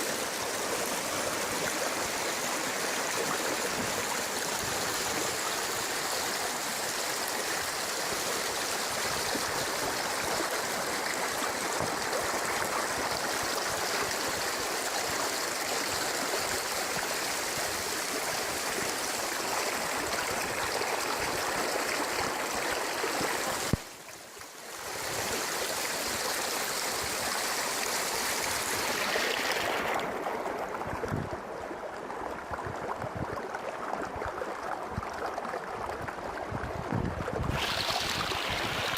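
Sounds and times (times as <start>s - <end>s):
river water rushing: 0.0s - 15.1s.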